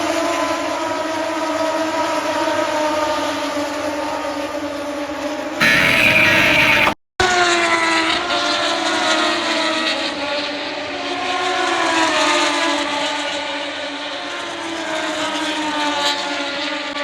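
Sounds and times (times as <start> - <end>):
engine droning: 5.6 - 7.0.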